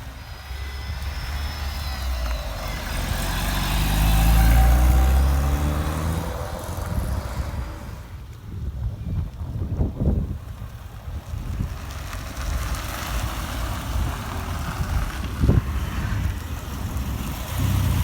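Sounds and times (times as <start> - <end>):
wind rumble on microphone: 0.0 - 18.0
car driving past: 0.4 - 8.1, 11.9 - 18.0.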